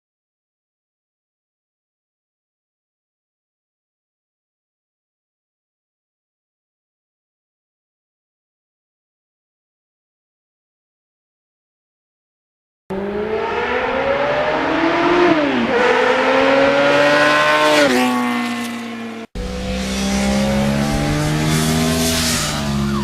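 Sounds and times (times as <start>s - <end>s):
motorcycle engine accelerating: 12.9s - 23.0s.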